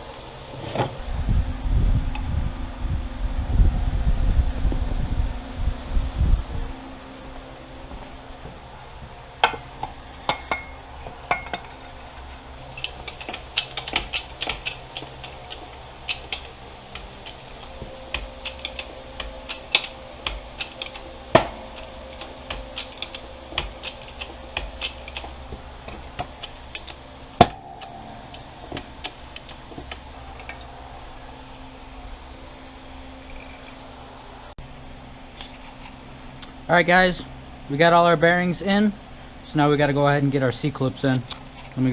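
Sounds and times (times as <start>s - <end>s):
metal tools clinking: 9.4s - 30.8s
sharp metallic knocks: 12.8s - 30.8s.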